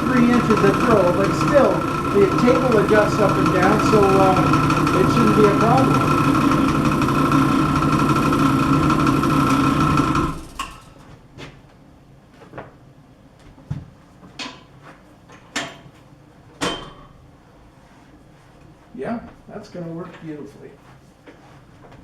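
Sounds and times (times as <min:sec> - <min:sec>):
drill press motor hum: 0:00.0 - 0:10.8.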